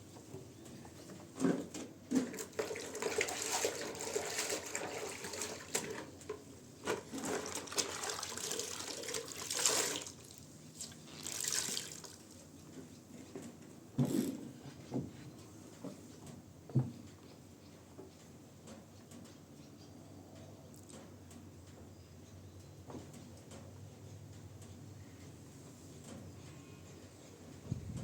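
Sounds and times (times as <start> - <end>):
water running and splashing: 2.3 - 6.1, 7.1 - 12.4.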